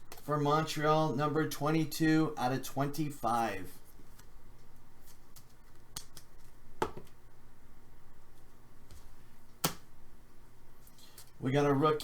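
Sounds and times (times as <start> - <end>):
faint low hum: 0.0 - 12.0
cards clicking in hands: 5.1 - 7.2.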